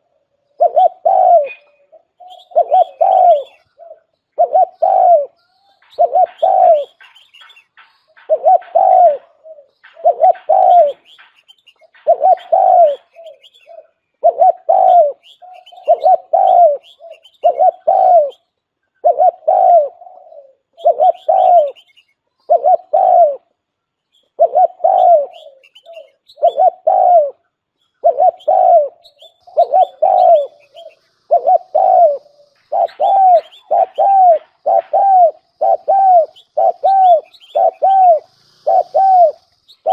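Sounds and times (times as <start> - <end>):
dove cooing: 0.0 - 18.4, 19.0 - 23.6, 24.3 - 39.9
faint higher chirps: 27.4 - 39.9.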